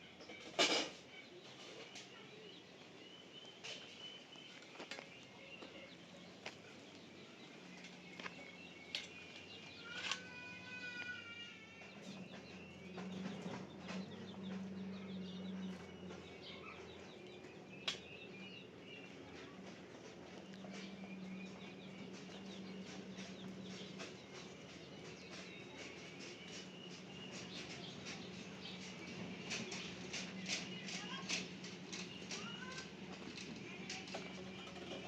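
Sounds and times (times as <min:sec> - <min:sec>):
scattered knocks and clicks: 0:11.9 - 0:18.1, 0:19.3 - 0:35.0.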